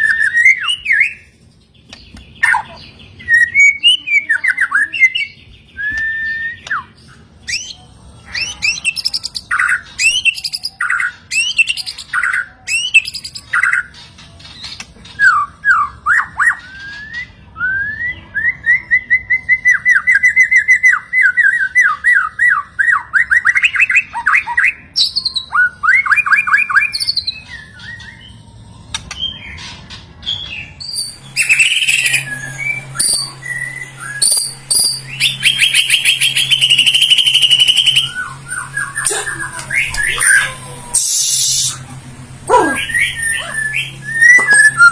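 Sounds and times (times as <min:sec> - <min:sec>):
bird singing whistles: 0:03.2 - 0:06.9, 0:30.8 - 0:40.4, 0:41.0 - 0:41.8, 0:42.8 - 0:44.9
low steady hum: 0:30.1 - 0:44.9.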